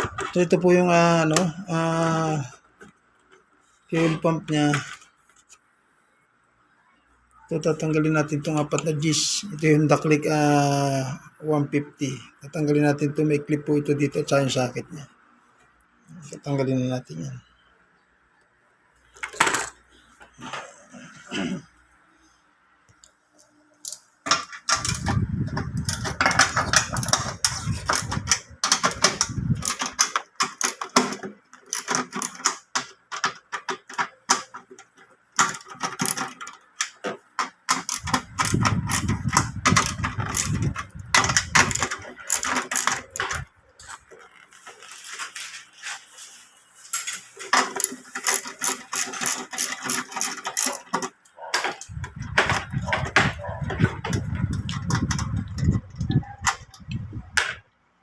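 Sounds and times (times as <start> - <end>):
tools and metal parts rattling: 19.2 - 19.8, 23.8 - 45.8, 46.9 - 57.0
low rumbling handling noise: 24.6 - 29.7, 38.0 - 44.8, 51.8 - 57.7.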